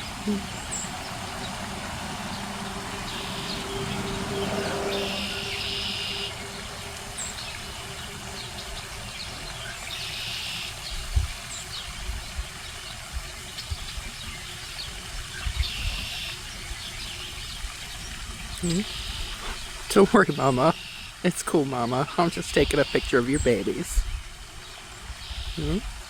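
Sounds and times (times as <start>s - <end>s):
distant traffic hum: 0.0s - 26.0s
faint bird chirps: 25.2s - 25.9s.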